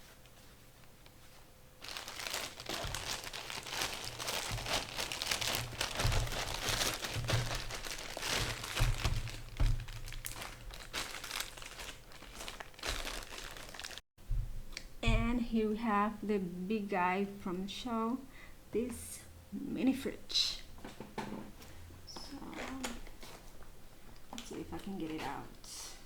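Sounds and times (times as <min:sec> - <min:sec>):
packaging crinkling: 0:01.8 - 0:14.0
dull knocks: 0:02.7 - 0:10.5.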